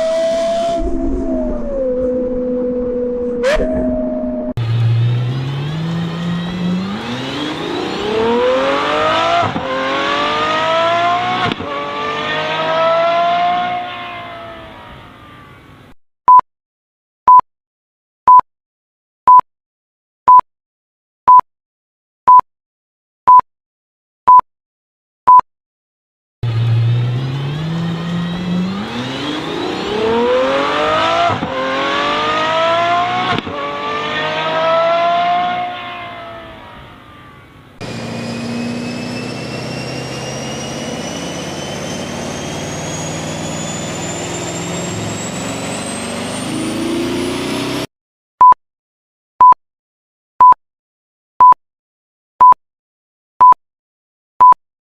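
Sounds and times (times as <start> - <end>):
car engine accelerating: 0.0 - 15.8, 26.4 - 47.9.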